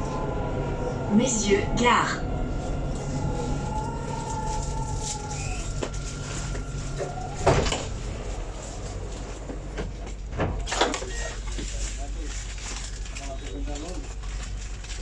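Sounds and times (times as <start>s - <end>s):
tram motor whine: 0.0s - 11.4s
steady low rumble: 0.0s - 13.2s.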